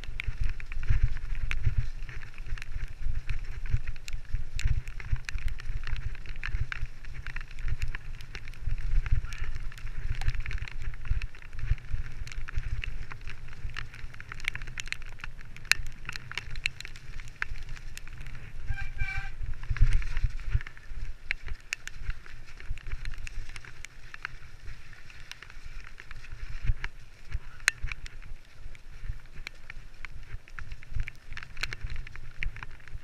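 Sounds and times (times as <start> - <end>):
bike rattling on rough trail: 0.0 - 33.0
wind rumble on microphone: 0.0 - 33.0
high squeal: 18.7 - 19.4.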